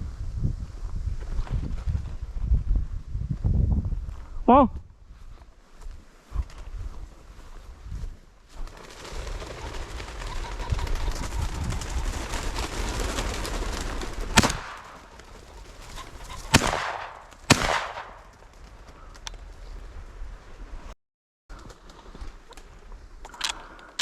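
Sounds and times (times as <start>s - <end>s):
sharp cracks with echo: 14.4s - 15.4s, 16.4s - 18.6s.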